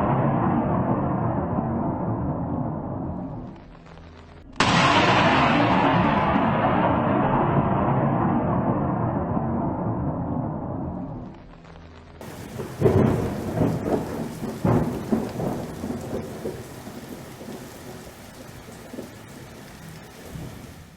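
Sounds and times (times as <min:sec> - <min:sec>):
thunder rolling: 0:00.0 - 0:03.6, 0:04.6 - 0:11.3, 0:12.2 - 0:20.9
rain hissing: 0:12.2 - 0:20.9.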